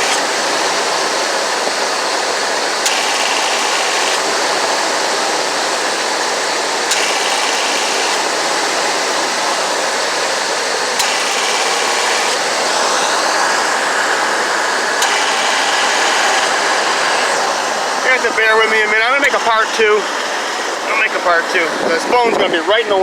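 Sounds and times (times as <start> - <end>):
compressor clutch clicking: 0.0 - 0.3, 2.8 - 4.3, 6.9 - 8.3, 11.0 - 12.5, 15.0 - 17.4
van engine and fan rushing: 0.0 - 23.0.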